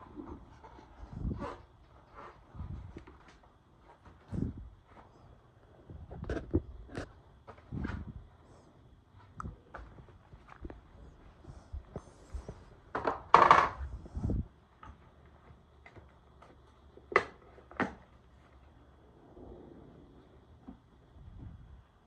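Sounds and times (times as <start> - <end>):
tools and parts knocking: 12.9 - 13.9.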